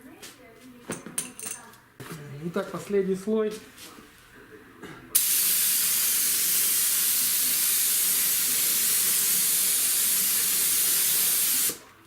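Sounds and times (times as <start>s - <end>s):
spray gun hissing: 5.2s - 11.8s.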